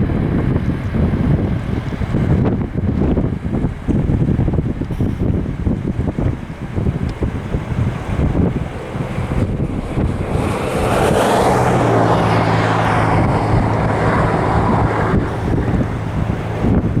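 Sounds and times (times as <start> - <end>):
wind buffeting microphone: 0.0 - 17.0
locomotive engine drone: 4.8 - 17.0.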